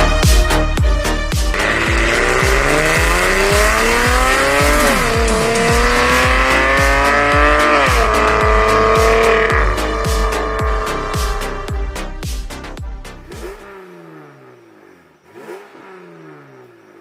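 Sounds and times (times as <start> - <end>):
dance music with kick drum: 0.0 - 13.6
car engine accelerating: 0.0 - 17.0.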